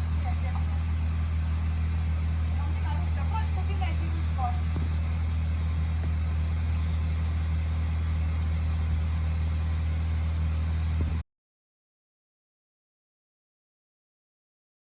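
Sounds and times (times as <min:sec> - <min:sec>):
engine idling: 0:00.0 - 0:11.2.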